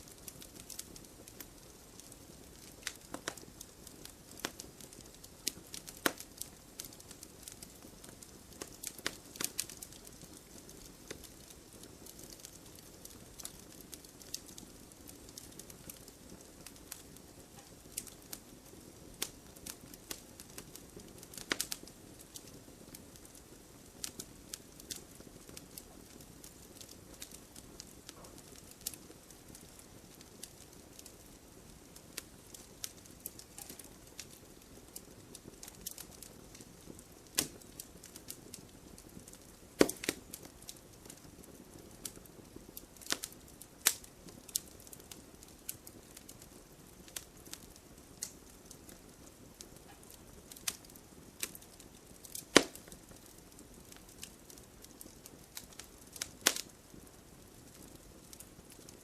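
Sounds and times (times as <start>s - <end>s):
fire crackling and popping: 0.0s - 59.0s
low steady hiss: 0.0s - 59.0s.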